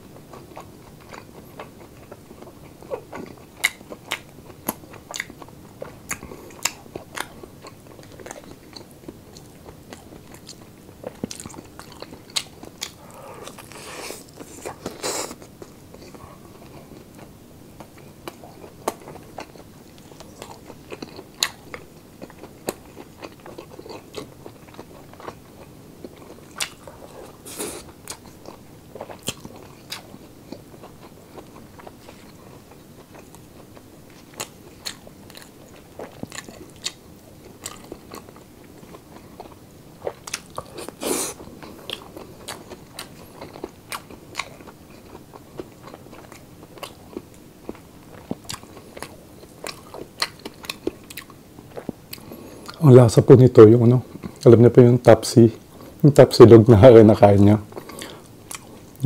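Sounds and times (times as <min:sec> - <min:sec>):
person chewing and crunching food: 0:00.1 - 0:52.8, 0:54.0 - 0:54.5, 0:57.6 - 0:59.0.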